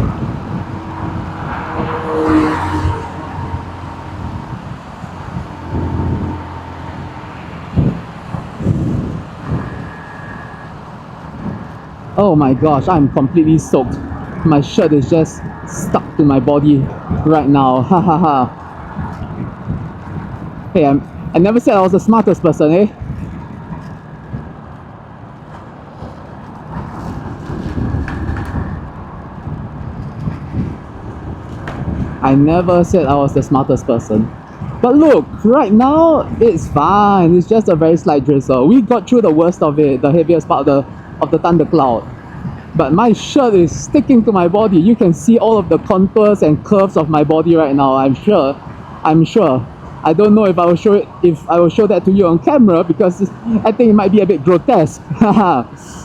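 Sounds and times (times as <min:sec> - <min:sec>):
motorcycle engine: 0:00.0 - 0:12.2
wind rushing: 0:00.0 - 0:44.8.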